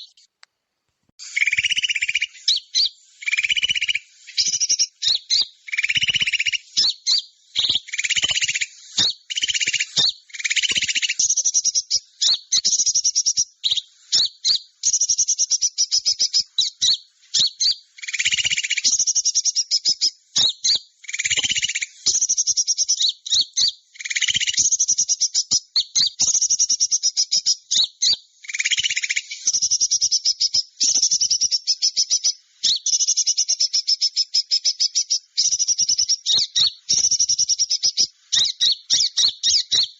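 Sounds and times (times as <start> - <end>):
songbirds chattering trills: 0.0 - 0.4, 1.2 - 39.9
lower-pitched bird bursts: 1.2 - 23.4.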